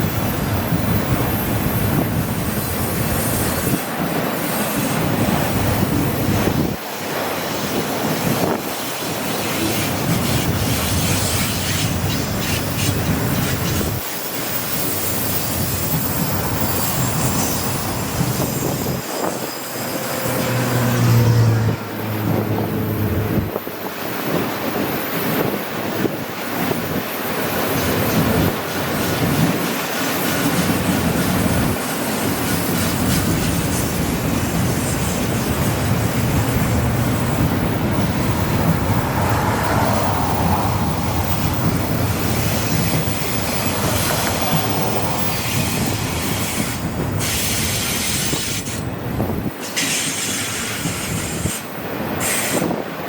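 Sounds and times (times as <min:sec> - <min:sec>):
wheel squeal: 0:09.5 - 0:23.7
train wheels clattering over rails: 0:26.0 - 0:52.8.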